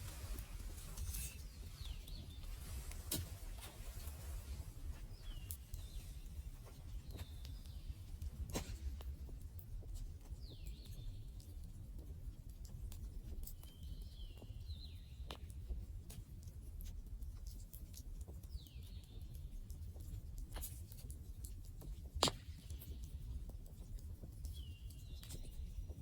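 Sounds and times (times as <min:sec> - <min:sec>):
low fire rumble: 0:00.0 - 0:26.0.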